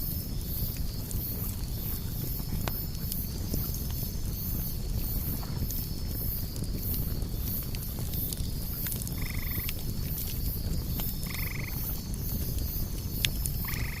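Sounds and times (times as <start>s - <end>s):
wood fire crackling and popping: 0.0s - 14.0s
frog croaking: 9.2s - 9.8s, 11.2s - 11.9s, 13.6s - 14.0s.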